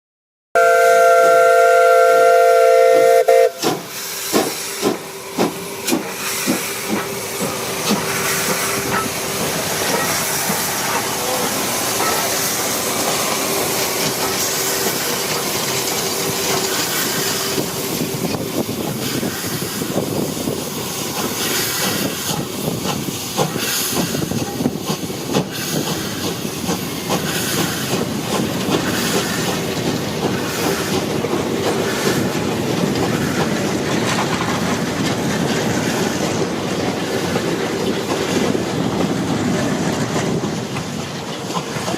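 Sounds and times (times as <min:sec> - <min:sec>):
steam locomotive chime whistle: 0:00.6 - 0:03.9
steam locomotive chuffing: 0:00.6 - 0:41.9
steam hiss: 0:03.1 - 0:41.9
train clatter: 0:03.2 - 0:41.9.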